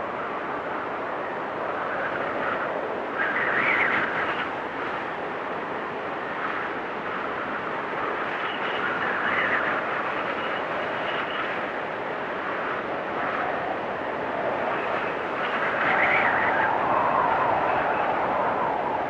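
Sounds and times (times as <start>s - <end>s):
storm wind blowing: 0.0s - 19.0s
high wind whistle: 8.0s - 19.0s.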